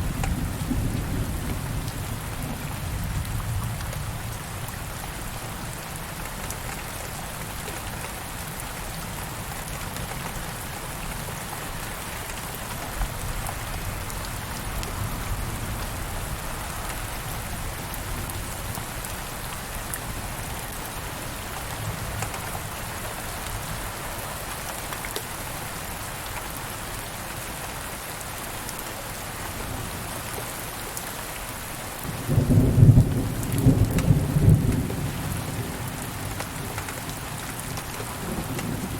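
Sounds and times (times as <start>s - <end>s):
steady rain falling: 0.0s - 38.9s
thunder rumbling: 32.1s - 36.2s.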